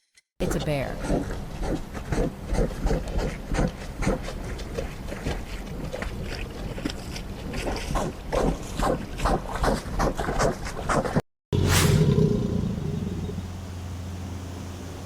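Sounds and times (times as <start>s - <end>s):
bear rough bursts: 11.6s - 13.9s.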